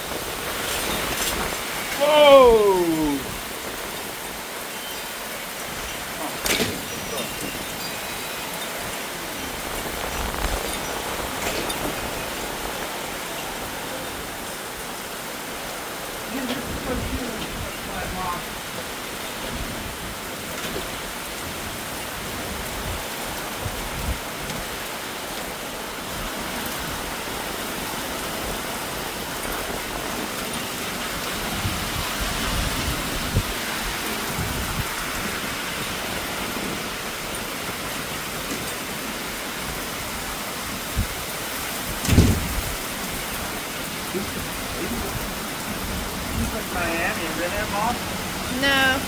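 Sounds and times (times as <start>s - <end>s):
heavy rain pouring: 0.0s - 49.0s
dull low thump: 42.0s - 42.8s.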